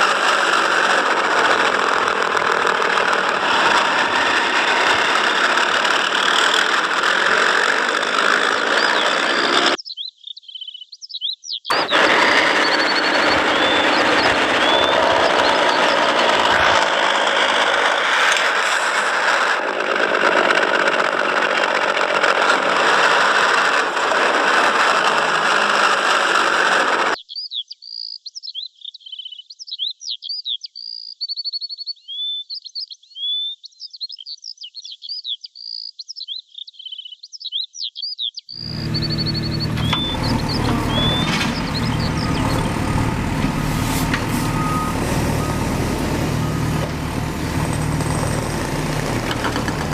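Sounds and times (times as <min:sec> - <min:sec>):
bird chirps and trills: 0:08.8 - 0:11.8, 0:12.4 - 0:16.1, 0:27.2 - 0:44.6
low hum: 0:11.7 - 0:19.2, 0:38.6 - 0:49.9
loud steady rushing noise: 0:11.7 - 0:19.9, 0:38.6 - 0:49.9.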